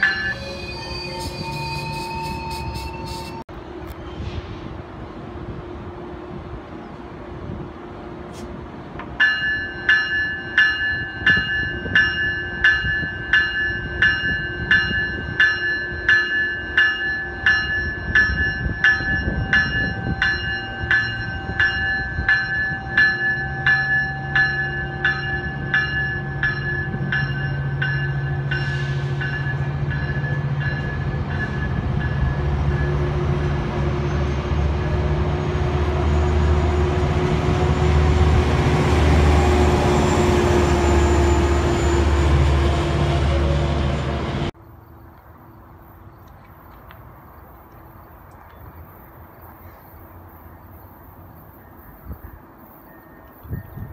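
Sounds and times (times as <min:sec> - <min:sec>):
train bell ringing: 0:00.0 - 0:03.4, 0:09.2 - 0:33.6, 0:50.4 - 0:53.9
diesel locomotive engine drone: 0:00.0 - 0:53.9.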